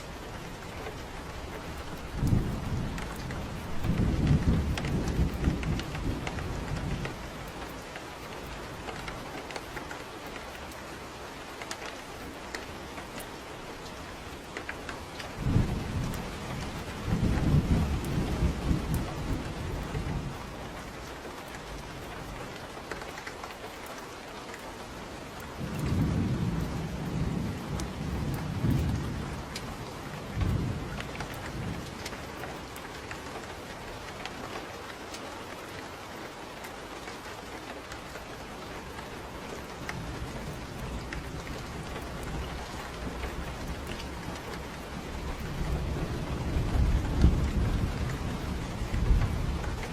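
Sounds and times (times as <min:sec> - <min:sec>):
thunder rumbling: 0:00.0 - 0:09.4, 0:14.0 - 0:22.6, 0:25.5 - 0:33.6, 0:37.9 - 0:49.9
steady rain: 0:00.0 - 0:49.9.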